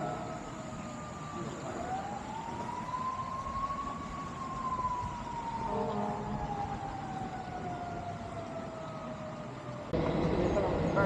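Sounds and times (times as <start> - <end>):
distant siren wailing: 0.0 - 11.0.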